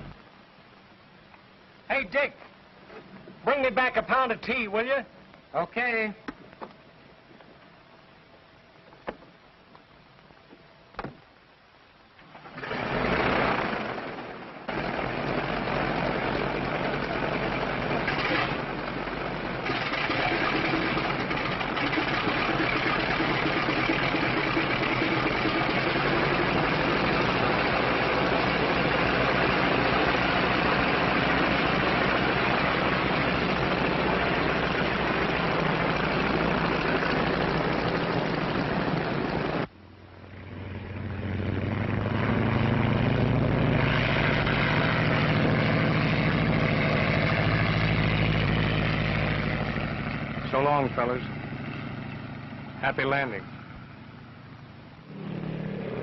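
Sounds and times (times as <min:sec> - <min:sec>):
propeller airplane engines running: 0:12.2 - 0:56.0.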